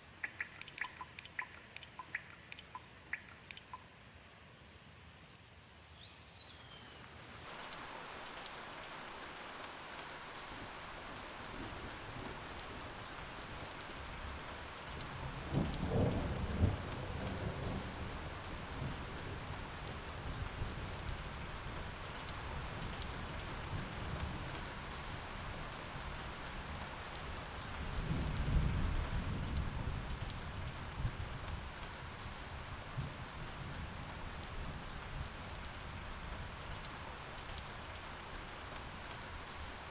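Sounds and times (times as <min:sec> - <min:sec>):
steady rain falling: 0:00.0 - 0:39.9
thunder rumbling: 0:11.2 - 0:21.4.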